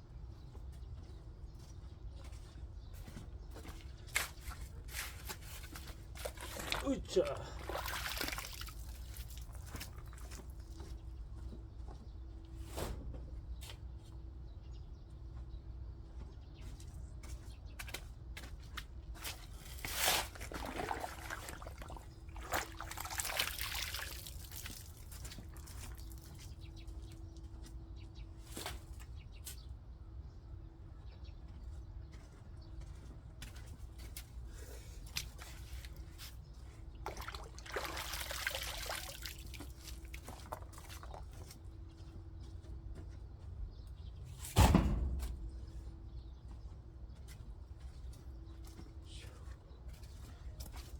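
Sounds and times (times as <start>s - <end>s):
soil pouring: 6.2s - 10.2s, 19.8s - 26.2s, 37.0s - 41.4s.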